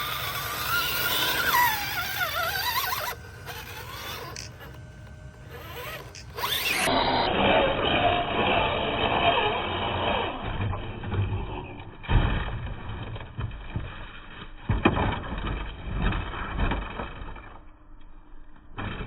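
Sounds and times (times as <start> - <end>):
rc car electric motor whining: 0.0 - 12.0.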